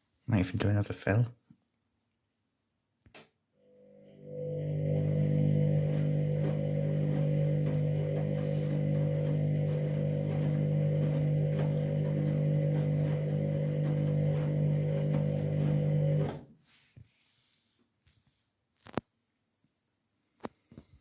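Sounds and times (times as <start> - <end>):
washing machine humming: 3.8 - 16.4.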